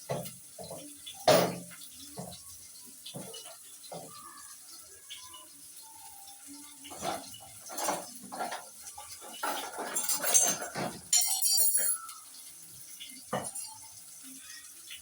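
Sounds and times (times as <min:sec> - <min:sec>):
metal pot and utensils clattering: 0:00.0 - 0:04.4, 0:06.2 - 0:14.4
ringing metallic clink: 0:11.1 - 0:12.1.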